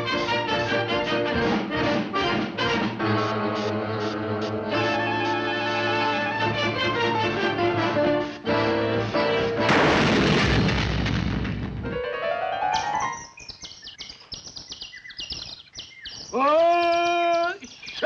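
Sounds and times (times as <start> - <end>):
orchestral music: 0.0 - 9.8
loud noisy crash: 9.7 - 12.0.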